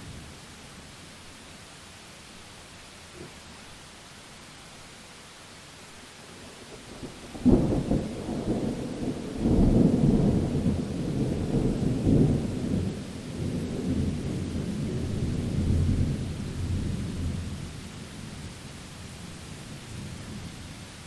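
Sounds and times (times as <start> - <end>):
rain hissing: 0.0 - 21.0
thunder rumbling: 7.0 - 17.7.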